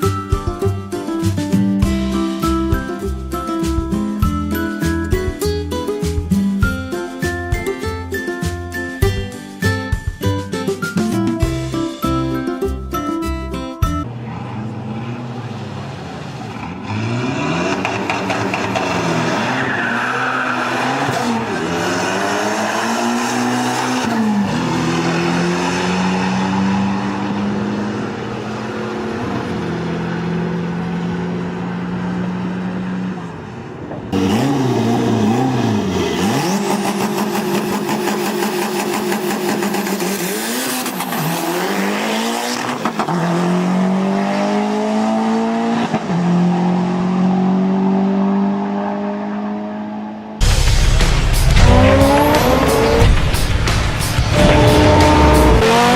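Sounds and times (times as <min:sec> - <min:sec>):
car engine revving: 0:14.1 - 0:55.9.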